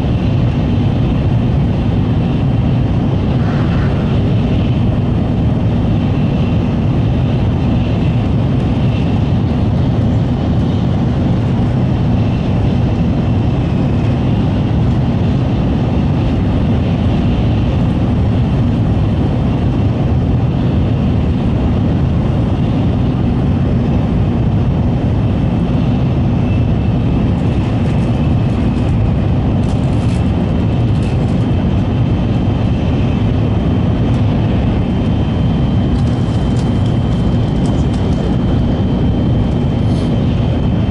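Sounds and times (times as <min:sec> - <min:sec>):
train rumbling at speed: 0:00.0 - 0:40.9.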